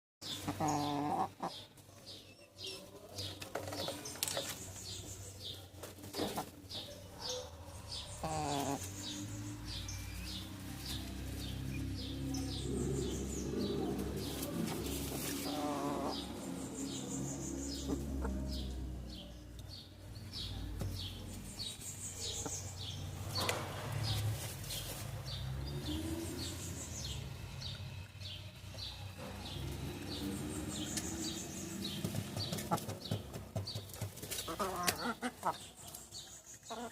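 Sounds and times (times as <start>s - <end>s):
chickens clucking: 0.2s - 1.9s, 2.8s - 19.7s, 27.7s - 36.9s
chicks peeping: 0.2s - 36.9s.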